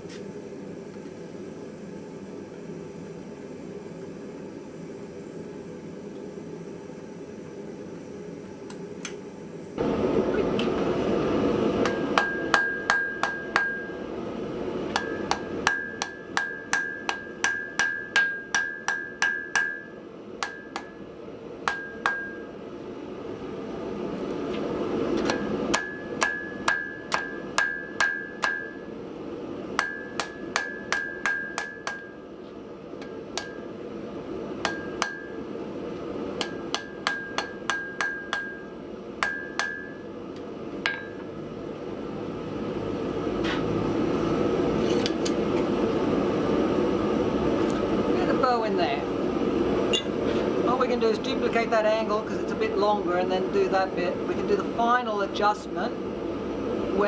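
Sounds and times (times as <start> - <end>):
anvil ringing: 11.8 - 14.0, 15.0 - 21.0, 21.7 - 22.5, 25.3 - 28.9, 29.8 - 32.2, 34.6 - 35.4, 36.4 - 40.0, 40.9 - 41.3, 49.9 - 50.2
hammer beating metal on anvil: 11.8 - 14.0, 14.9 - 21.0, 21.7 - 22.5, 25.2 - 28.9, 29.8 - 32.2, 33.0 - 33.8, 34.6 - 35.4, 36.4 - 40.0, 40.9 - 41.3, 49.9 - 50.2.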